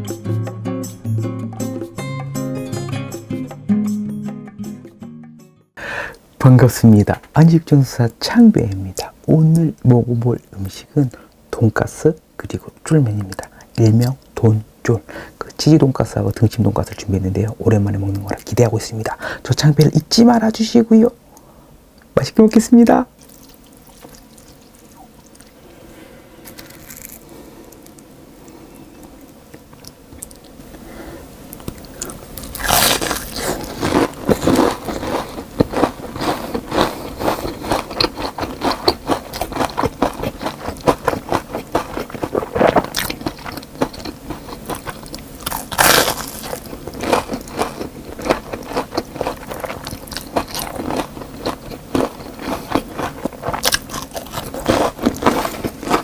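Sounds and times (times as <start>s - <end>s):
crunching and chewing fried food: 17.8s - 19.1s, 23.2s - 25.6s, 26.4s - 28.0s, 29.2s - 30.6s, 31.6s - 56.0s.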